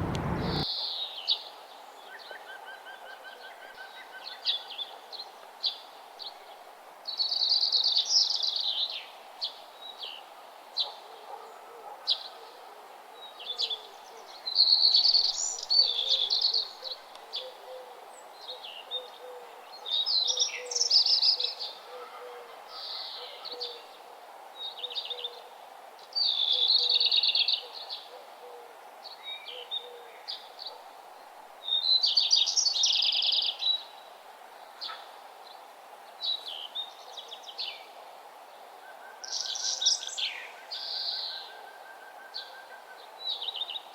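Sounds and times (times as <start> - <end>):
songbird singing: 0.0 - 0.7, 13.3 - 21.9, 31.6 - 43.9
faint steady background noise: 0.0 - 43.9.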